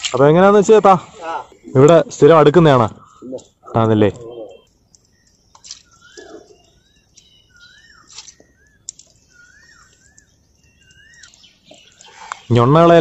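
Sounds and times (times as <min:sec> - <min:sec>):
higher bird chirps: 0:01.2 - 0:13.0
faint clicks: 0:04.6 - 0:07.3, 0:08.0 - 0:09.2, 0:09.8 - 0:12.5.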